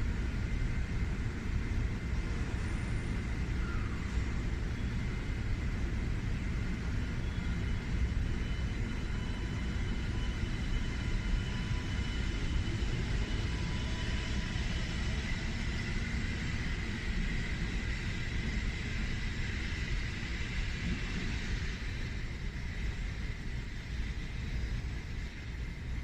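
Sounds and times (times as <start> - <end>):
faint high motor whine: 0.0 - 26.0
train cars rolling rumble: 0.0 - 26.0.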